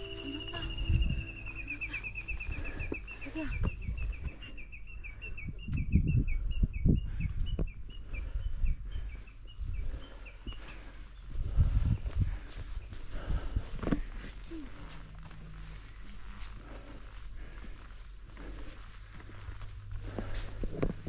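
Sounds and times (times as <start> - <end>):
footsteps on trail: 0.0 - 4.4, 9.9 - 21.0
songbird whistling: 0.0 - 7.0.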